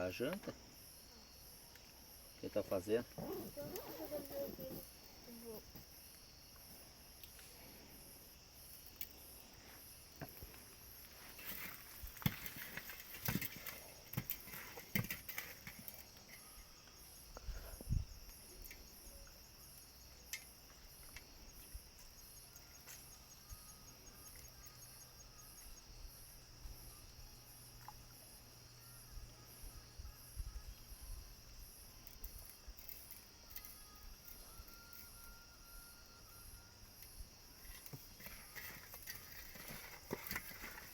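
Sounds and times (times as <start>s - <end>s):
night insects chirping: 0.0s - 40.9s
knocks and clatter of handling things: 11.4s - 16.0s, 37.8s - 40.9s.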